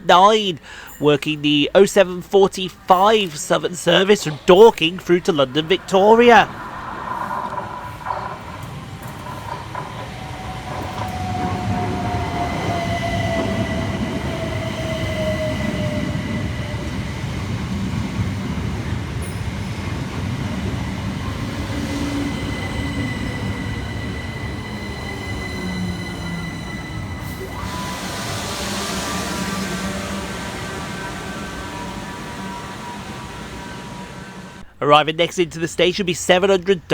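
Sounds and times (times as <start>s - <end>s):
wheels rumbling on rails: 2.9s - 34.6s
train whine falling: 18.4s - 34.6s.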